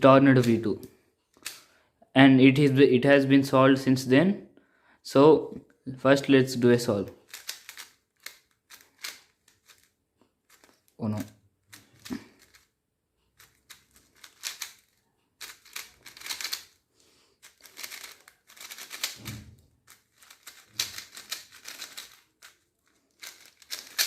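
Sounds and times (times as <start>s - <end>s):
speed cube clicking: 1.4s - 1.7s, 7.2s - 9.9s, 11.6s - 12.7s, 13.4s - 16.8s, 17.4s - 24.0s.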